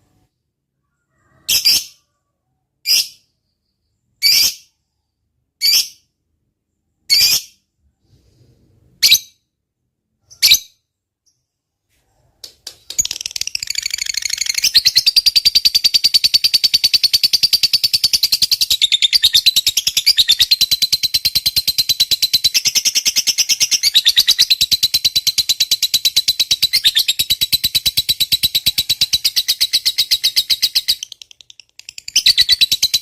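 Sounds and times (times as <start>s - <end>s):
bird shrill chirps and rattling chatter: 12.9s - 33.0s.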